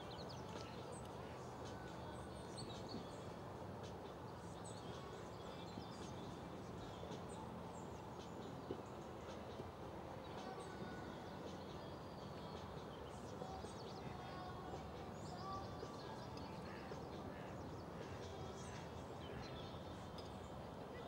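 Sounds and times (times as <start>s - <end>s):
birds chirping: 0.0s - 21.0s
low outdoor background noise: 0.0s - 21.0s.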